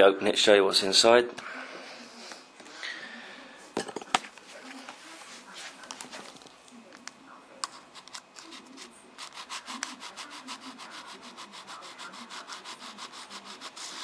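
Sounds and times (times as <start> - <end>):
packaging scratching strokes: 8.0 - 14.0.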